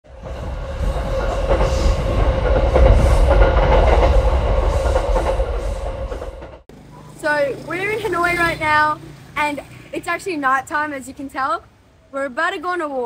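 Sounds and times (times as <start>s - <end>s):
train rumbling along rails: 0.0s - 6.7s.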